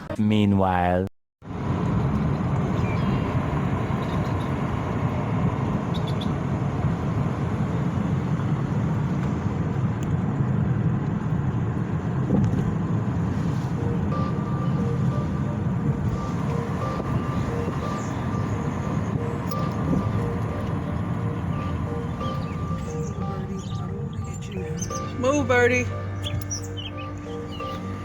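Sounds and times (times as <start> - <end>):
car road and engine noise: 1.4 - 28.0
faint steady tones: 12.6 - 28.0.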